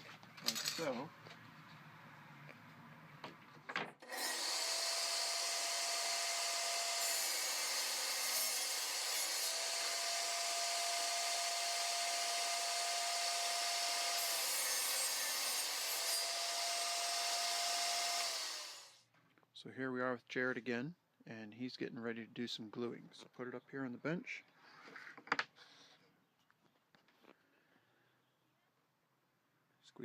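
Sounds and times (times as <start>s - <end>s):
power tool grinding wood: 4.0s - 19.0s
power tool whine: 4.0s - 19.0s.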